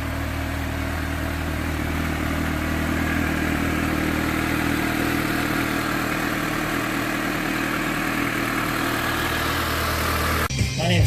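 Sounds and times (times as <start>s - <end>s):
motorcycle engine idling: 0.0s - 10.5s.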